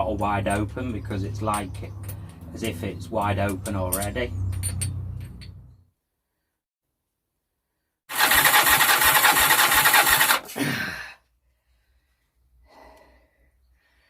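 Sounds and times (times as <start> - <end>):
engine cranking on electric starter: 8.1 - 10.5.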